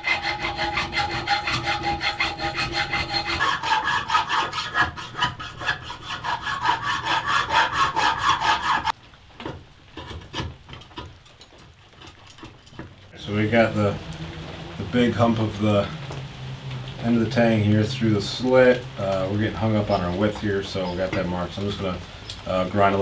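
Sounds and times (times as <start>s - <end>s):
hand file strokes on steel: 0.0s - 8.9s.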